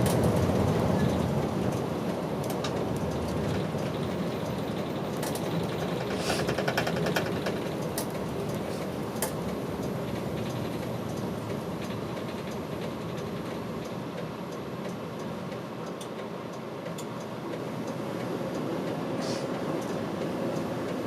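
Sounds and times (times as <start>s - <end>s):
bus engine and road noise: 0.0s - 21.0s
rattling ticks: 2.4s - 14.0s.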